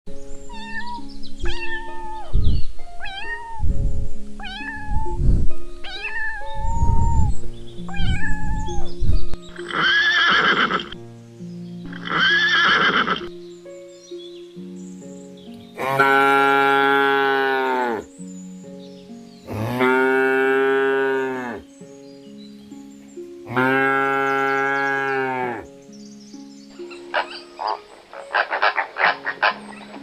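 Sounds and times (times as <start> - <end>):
music: 0.1 - 30.0
long harsh animal calls: 9.6 - 11.0, 11.9 - 13.3, 26.9 - 30.0.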